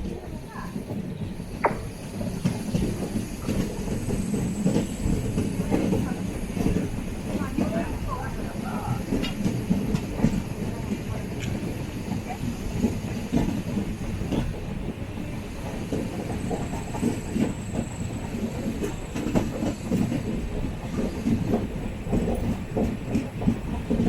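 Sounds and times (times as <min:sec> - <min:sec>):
train rumbling on track: 0:00.0 - 0:24.0
wheels clicking over rail joints: 0:00.0 - 0:24.0.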